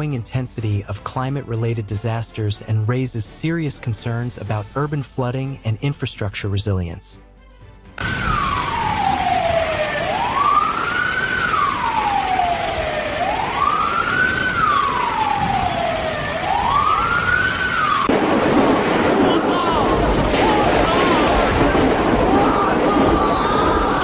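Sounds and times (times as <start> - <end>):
emergency siren wailing: 8.0 - 24.0.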